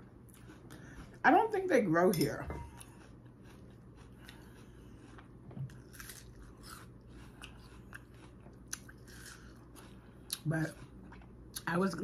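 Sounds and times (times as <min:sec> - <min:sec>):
crunching crisp fruit: 0:02.8 - 0:11.7.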